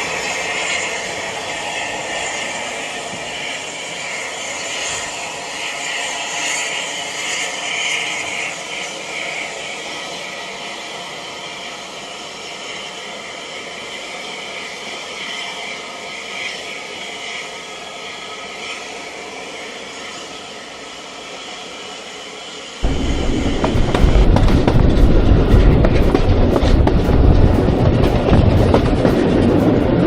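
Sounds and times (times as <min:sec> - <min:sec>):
train carriage wheels on rails: 0:22.8 - 0:30.0.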